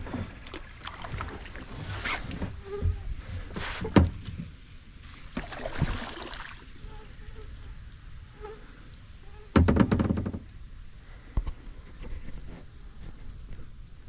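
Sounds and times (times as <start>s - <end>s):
paddle strokes splashing in water: 0.0s - 4.0s, 5.0s - 6.8s.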